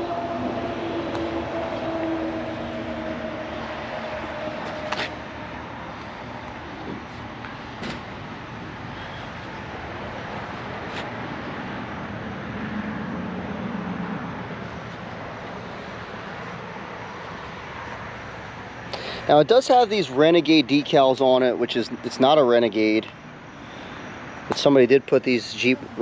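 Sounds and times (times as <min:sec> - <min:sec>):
low hum: 0:00.0 - 0:18.6
outdoor traffic noise: 0:00.0 - 0:26.0.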